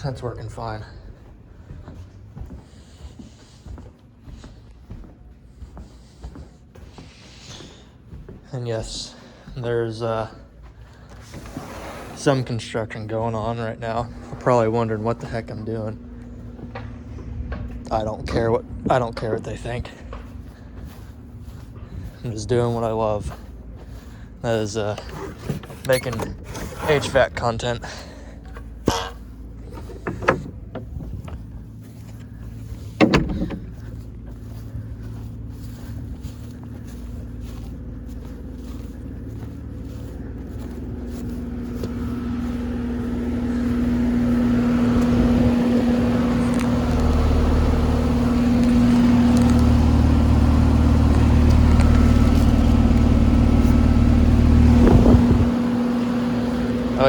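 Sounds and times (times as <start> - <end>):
air conditioner compressor hum: 0.0 - 57.0
sharp knocks: 33.0 - 33.8.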